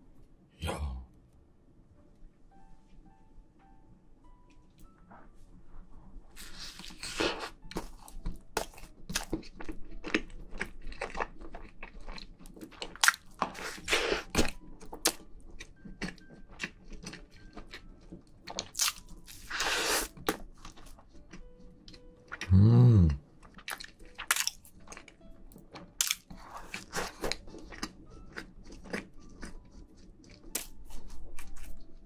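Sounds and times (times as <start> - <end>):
squishy chewing noises: 6.4 - 32.0.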